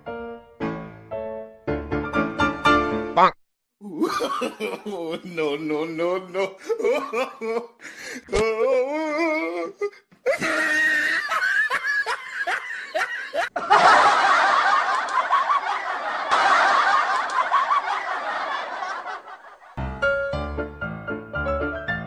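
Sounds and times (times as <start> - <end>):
person laughing: 3.8 - 14.1
crowd laughing: 3.9 - 7.8, 10.3 - 19.8.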